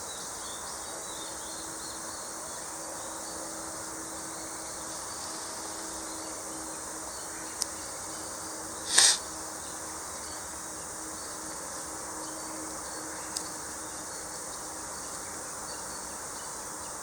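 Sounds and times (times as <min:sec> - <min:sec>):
high-pitched insect drone: 0:00.2 - 0:17.0
sharp click: 0:08.9 - 0:09.2.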